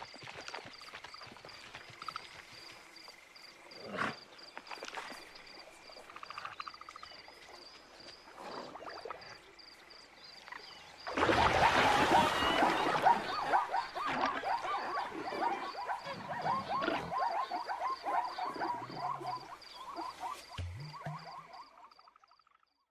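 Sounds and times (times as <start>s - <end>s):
pulsing high chirp: 18.7s - 21.8s.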